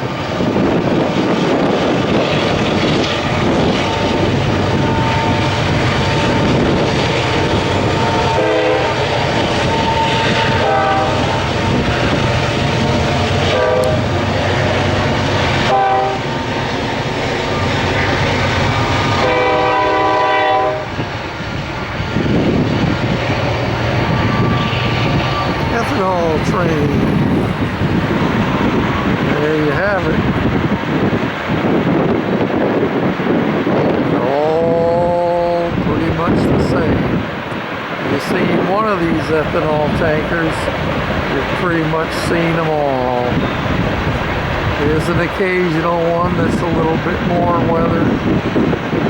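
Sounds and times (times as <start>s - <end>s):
diesel locomotive rumble: 0.0s - 49.0s
locomotive horn blasts: 3.9s - 7.1s, 8.0s - 14.1s, 15.6s - 16.3s, 19.0s - 21.0s.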